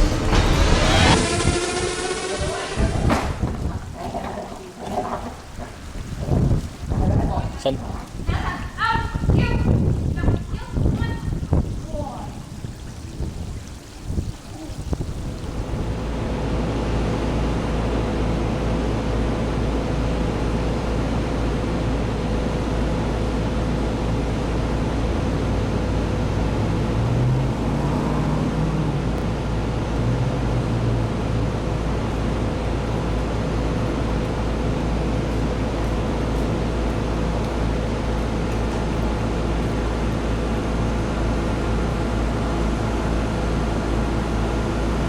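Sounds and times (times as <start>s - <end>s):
constant hum: 0.0s - 45.0s
engine-like rumble: 0.0s - 45.0s.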